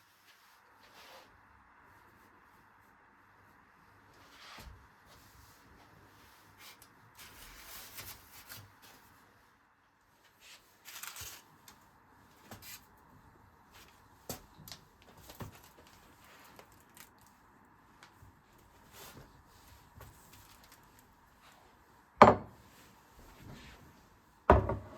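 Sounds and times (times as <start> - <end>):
rustling and crinkling: 2.0 - 9.4, 10.1 - 13.0, 13.7 - 22.0.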